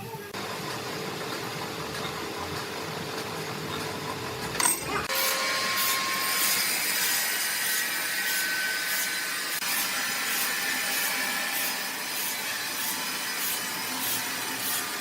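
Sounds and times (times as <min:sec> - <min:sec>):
saw cutting wood: 0:05.0 - 0:15.0.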